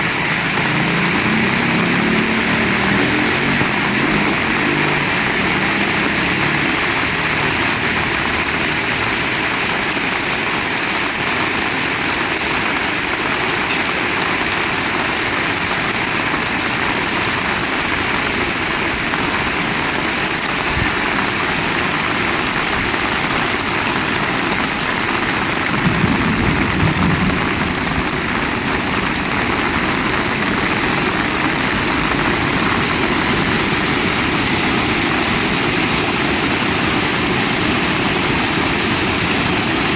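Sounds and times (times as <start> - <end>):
heavy rain falling: 0.0 - 39.9
low rumble: 25.7 - 34.2.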